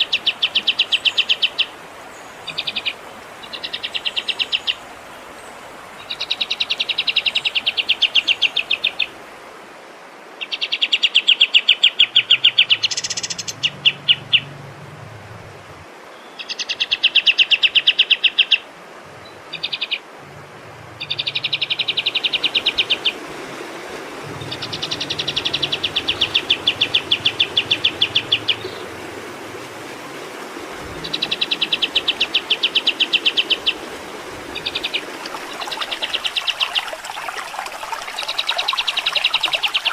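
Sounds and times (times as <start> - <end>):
songbird trilling: 2.4 - 4.8, 10.4 - 14.6, 21.0 - 23.2, 24.4 - 28.9, 31.0 - 33.8.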